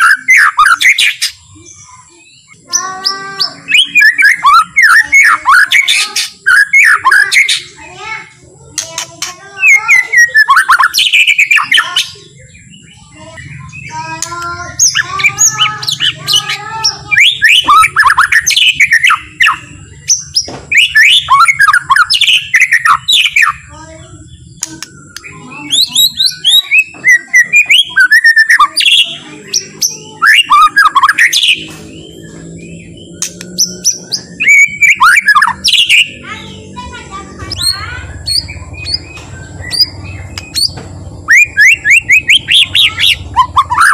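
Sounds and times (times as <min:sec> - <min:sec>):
bird singing whistles and chatter: 0:00.0 - 0:43.9.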